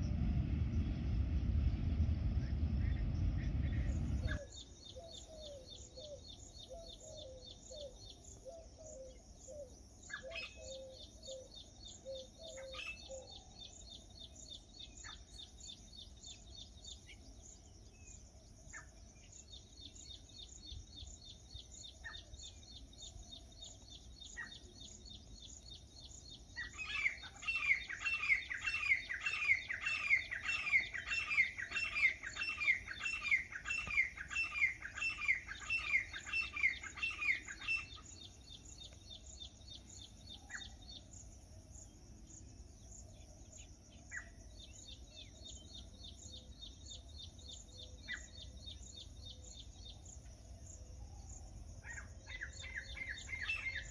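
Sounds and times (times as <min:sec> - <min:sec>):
birds calling: 0:02.6 - 0:41.1, 0:51.9 - 0:53.9
loud falling bird call: 0:26.8 - 0:38.0.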